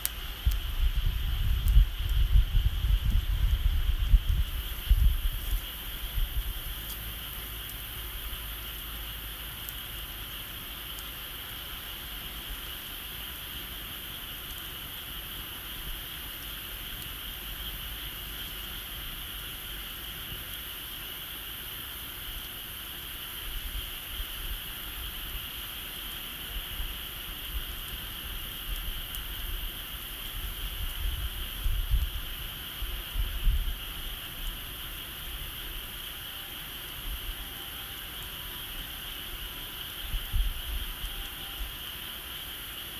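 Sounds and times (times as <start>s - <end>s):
wind rumble on microphone: 0.0s - 7.6s, 26.5s - 35.8s, 39.8s - 41.9s
bonfire crackling: 0.0s - 42.9s
insects or frogs calling: 0.0s - 42.9s.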